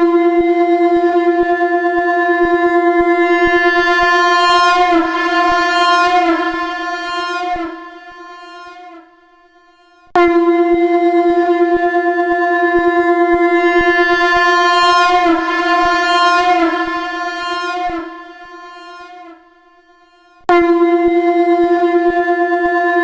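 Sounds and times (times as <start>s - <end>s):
conch shell blast: 3.3s - 9.9s, 13.6s - 19.6s.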